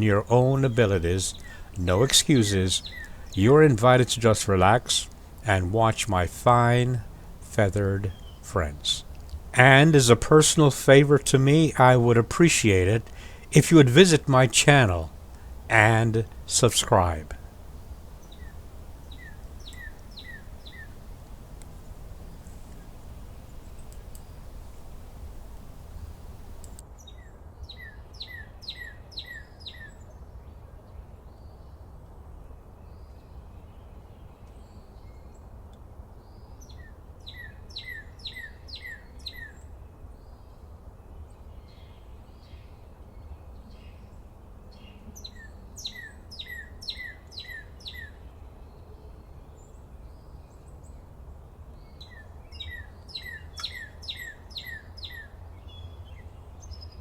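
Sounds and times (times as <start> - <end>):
songbird singing: 0.0 - 26.8, 51.9 - 55.9.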